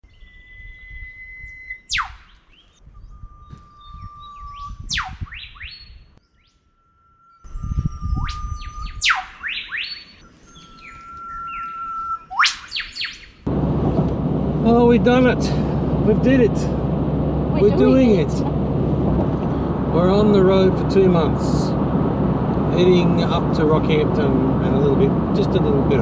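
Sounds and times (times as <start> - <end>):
short bird notes: 0.1 - 13.5
bird whistling with whip-crack: 0.9 - 2.8, 3.4 - 6.5, 7.4 - 13.4
low rumble: 13.5 - 26.0.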